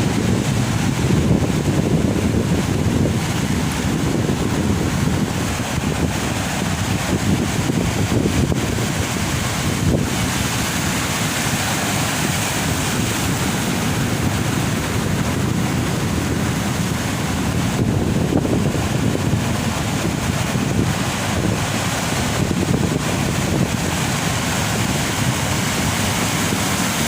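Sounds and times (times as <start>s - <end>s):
ocean surf breaking: 0.0s - 27.0s
wind buffeting microphone: 0.0s - 27.0s.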